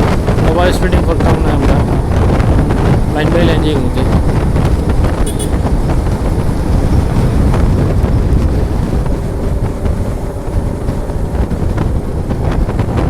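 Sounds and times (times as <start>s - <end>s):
motorcycle engine running: 0.0s - 13.0s
wind rushing over microphone: 0.0s - 13.0s.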